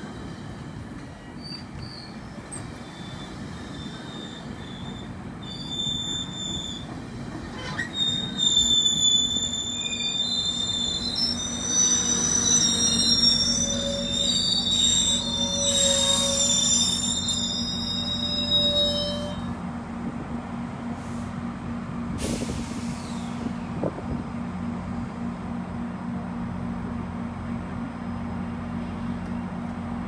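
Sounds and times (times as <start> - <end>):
train wheels rumbling on rail: 0.0 - 30.0
high-pitched metallic squealing: 1.4 - 6.9, 7.5 - 19.5.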